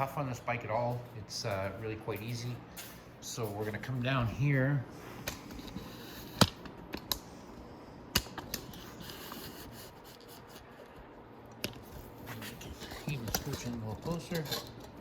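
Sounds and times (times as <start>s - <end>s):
steady low hiss: 0.0s - 15.0s
handling clicks and knocks: 12.7s - 15.0s.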